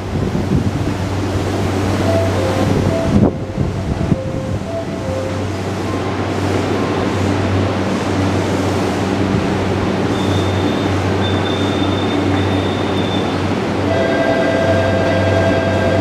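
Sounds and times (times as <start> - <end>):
electric train rumble and hum: 0.0 - 16.0.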